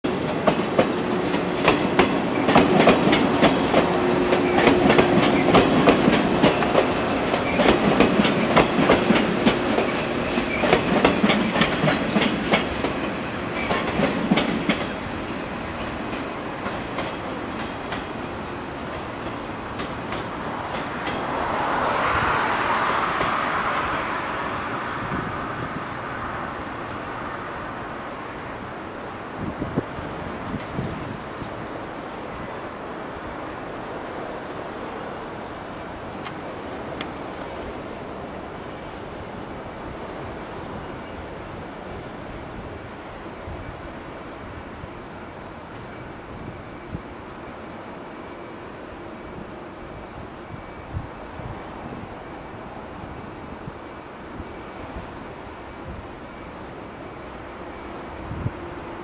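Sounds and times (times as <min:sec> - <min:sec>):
rushing noise: 0:00.0 - 0:28.6
train hum: 0:00.0 - 0:59.0
train wheels clattering over joints: 0:00.2 - 0:15.0.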